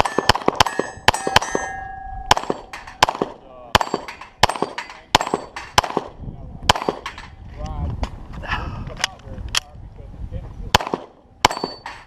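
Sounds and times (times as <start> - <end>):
steel plates clanging and ringing: 0.0 - 3.2, 3.8 - 5.8, 6.8 - 7.4, 11.5 - 12.0
pistol shots: 0.0 - 7.2, 10.8 - 12.0.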